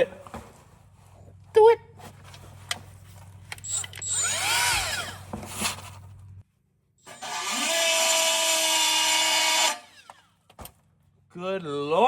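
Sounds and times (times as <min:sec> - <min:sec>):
die grinder whine: 0:03.6 - 0:05.3, 0:07.0 - 0:10.3.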